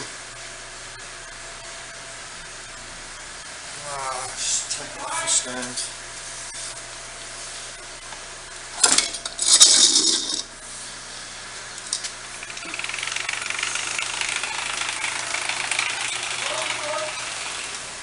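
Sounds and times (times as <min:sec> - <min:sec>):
fast mechanical engine rattle: 0:12.3 - 0:18.0.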